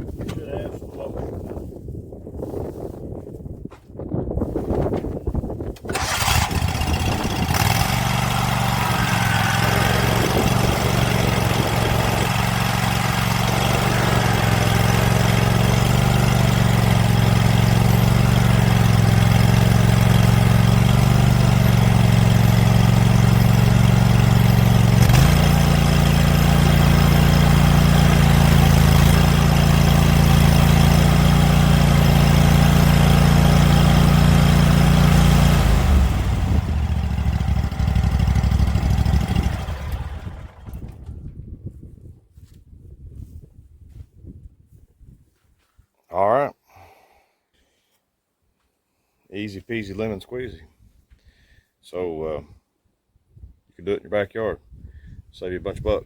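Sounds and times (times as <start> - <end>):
mower engine running: 5.9 - 41.4.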